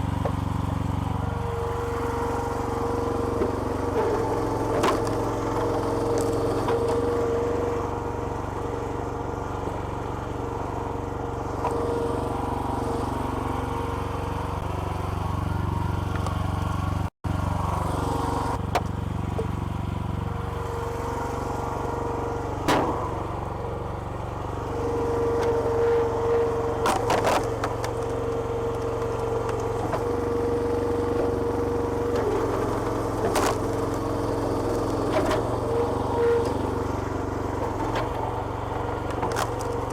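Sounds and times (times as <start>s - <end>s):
hydraulic pump whine: 0.0s - 39.9s
small petrol engine running: 0.0s - 39.9s
wood splitting cracks: 22.7s - 23.4s, 26.8s - 35.8s, 39.0s - 39.9s.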